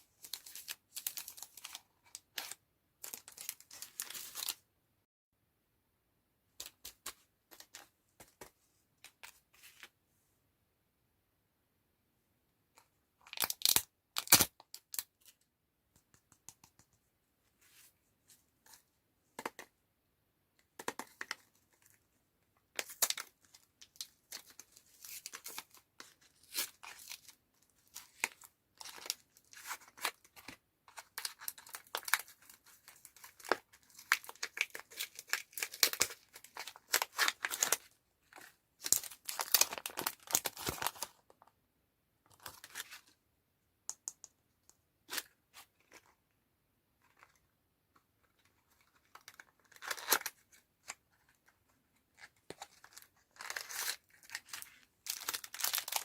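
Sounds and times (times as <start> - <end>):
candy packaging crinkling and tearing: 0.2 - 4.6, 13.2 - 15.4, 22.8 - 41.2, 48.5 - 51.5, 52.1 - 56.0.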